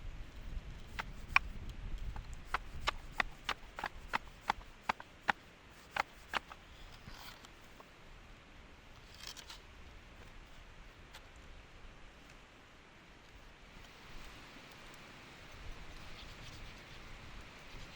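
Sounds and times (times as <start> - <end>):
rustling: 0.2 - 7.9, 13.2 - 17.9
sharp clicks: 0.9 - 6.6.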